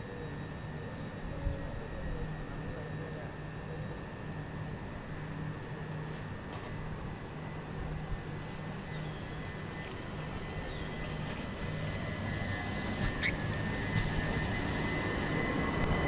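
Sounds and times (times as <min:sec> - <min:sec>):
electric train low hum: 0:00.0 - 0:16.0
high whine: 0:06.7 - 0:16.0.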